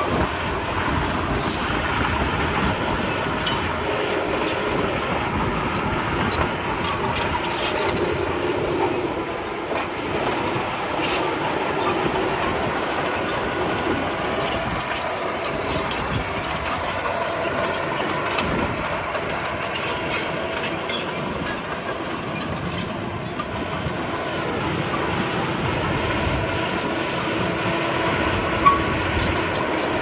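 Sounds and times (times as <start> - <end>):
bulldozer engine running: 0.0 - 30.0
steel tracks clattering: 0.0 - 30.0.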